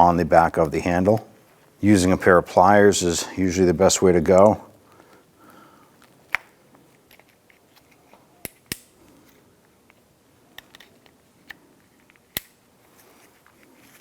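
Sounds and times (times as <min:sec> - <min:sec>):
faint handling sounds: 0:00.3 - 0:02.5, 0:03.1 - 0:14.0
metal clip clicks and snaps: 0:08.4 - 0:08.9, 0:10.6 - 0:12.6.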